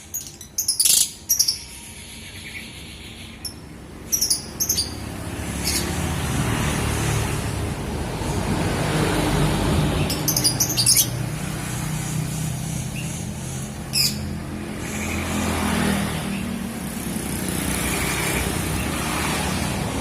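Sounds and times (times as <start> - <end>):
lovebird shrill calls: 0.1 - 5.0, 10.1 - 11.2.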